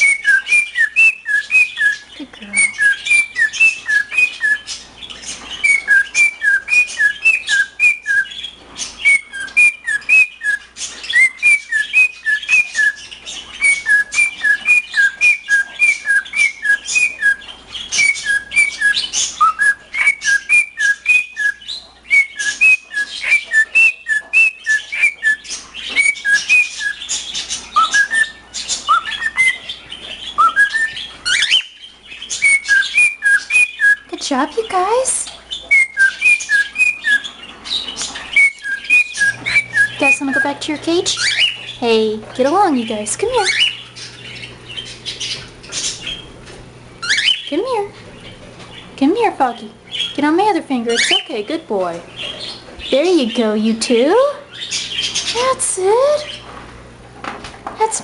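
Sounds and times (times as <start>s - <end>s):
cockatiel whistling: 0.0s - 34.2s, 35.6s - 41.8s, 43.3s - 46.3s, 47.0s - 47.5s, 50.9s - 51.3s.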